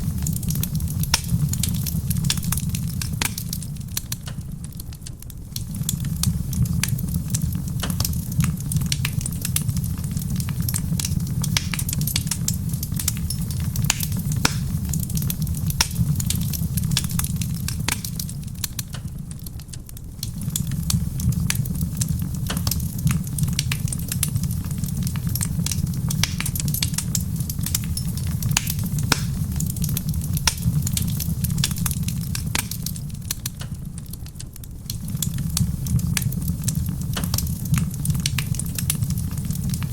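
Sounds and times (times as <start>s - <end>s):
fire low rumble: 0.0s - 39.9s
rain pattering on a roof: 0.0s - 39.9s
wood fire crackling and popping: 0.0s - 39.9s.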